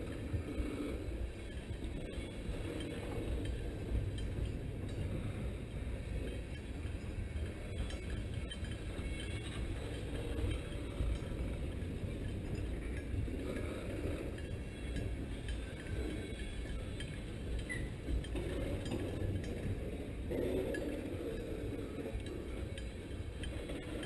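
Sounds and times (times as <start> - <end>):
steel wheels rumbling on rail: 0.0 - 24.0
high wheel squeak: 14.4 - 18.3.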